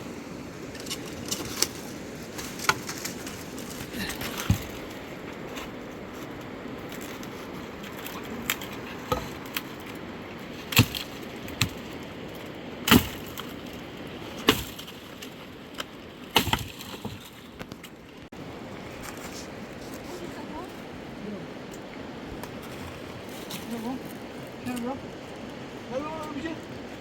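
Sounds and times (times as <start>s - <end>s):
wood cracking and knocking: 0.7s - 10.0s, 10.6s - 18.2s.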